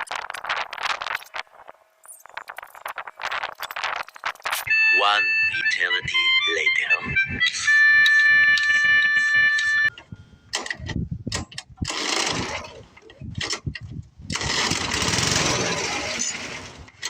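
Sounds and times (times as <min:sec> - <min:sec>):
snowblower engine firing: 0:11.8 - 0:13.6, 0:14.3 - 0:17.0.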